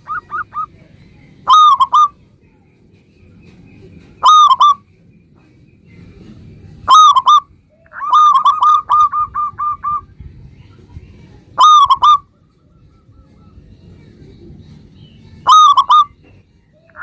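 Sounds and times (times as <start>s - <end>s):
dove cooing: 0.0s - 2.2s, 4.2s - 4.8s, 6.9s - 10.1s, 11.6s - 12.4s, 15.4s - 17.0s.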